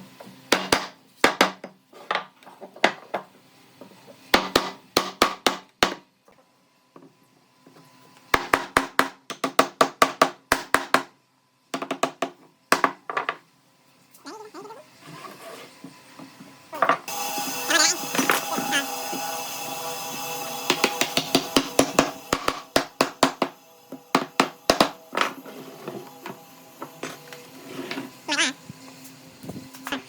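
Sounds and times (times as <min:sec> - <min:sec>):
hammer striking wood: 0:20.7 - 0:25.3.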